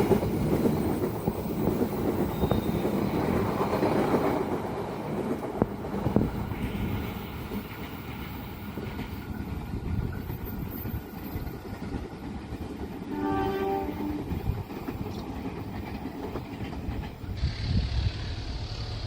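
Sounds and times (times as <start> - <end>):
train rumbling past: 0.0 - 19.0
locomotive horn blast: 13.1 - 14.3.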